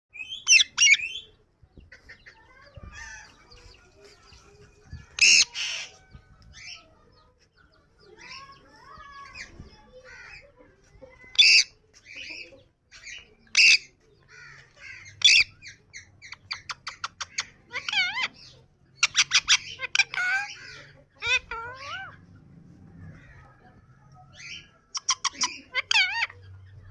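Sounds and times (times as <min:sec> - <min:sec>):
parakeet wavering chatter: 0:01.9 - 0:06.9, 0:11.2 - 0:23.6, 0:24.3 - 0:26.9.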